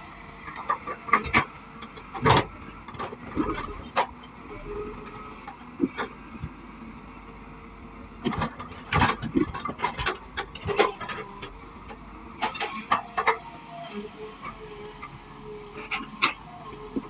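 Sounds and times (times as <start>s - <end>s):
excavator bucket clanking: 0.5s - 6.6s, 8.2s - 13.5s.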